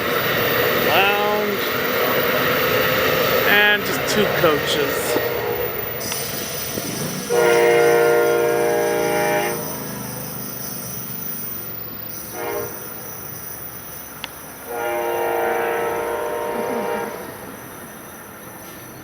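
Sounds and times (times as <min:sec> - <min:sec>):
train rumble: 0:00.0 - 0:19.0
locomotive air horn: 0:05.2 - 0:05.8, 0:07.3 - 0:09.8, 0:12.3 - 0:13.0, 0:14.7 - 0:17.4.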